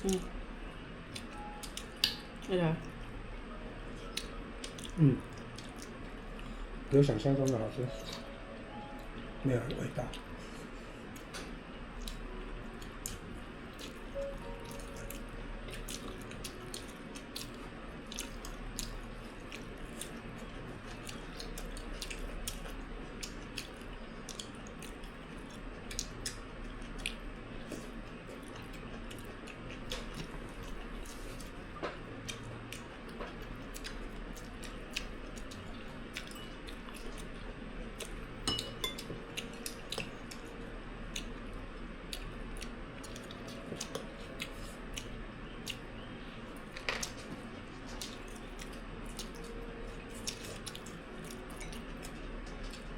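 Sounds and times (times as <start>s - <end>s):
steady low hum: 0.0s - 52.9s
chewing: 4.0s - 8.3s, 10.0s - 52.9s
utensils tapping bowls and plates: 38.5s - 39.1s.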